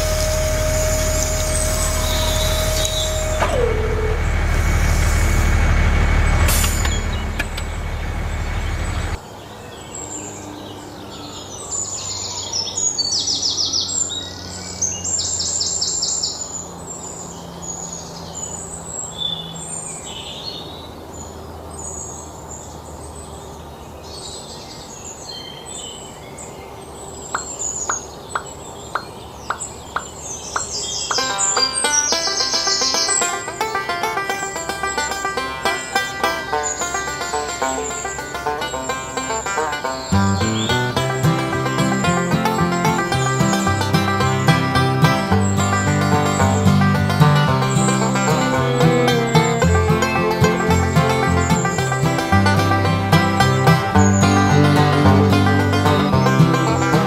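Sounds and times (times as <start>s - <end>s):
machine drone with whine: 0.0s - 9.2s
birds chirping and twittering: 0.0s - 57.0s
sharp clicks: 6.4s - 7.8s.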